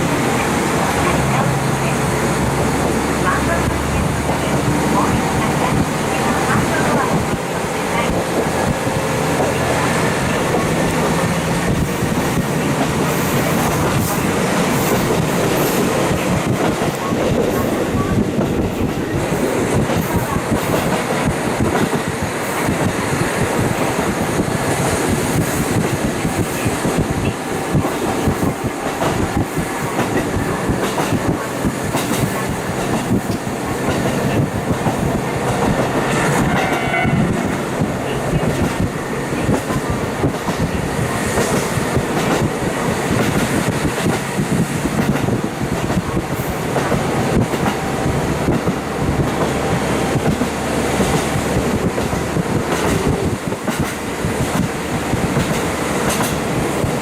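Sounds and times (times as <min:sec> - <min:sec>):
diesel train rumbling: 0:00.0 - 0:57.0
wheels clicking over rail joints: 0:48.5 - 0:57.0.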